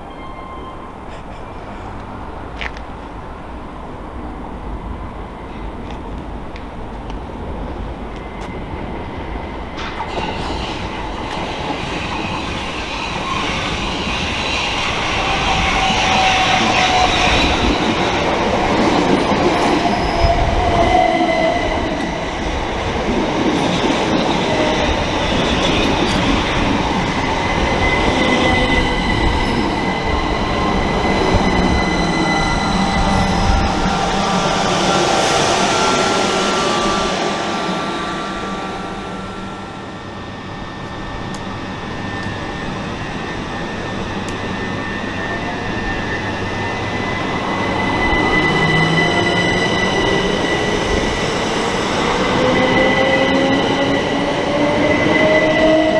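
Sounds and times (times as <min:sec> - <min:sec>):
electric train moving: 0:00.0 - 0:55.9
rail noise: 0:00.0 - 0:55.9
high squealing tones: 0:23.5 - 0:55.9
whine sliding in pitch: 0:24.1 - 0:55.9.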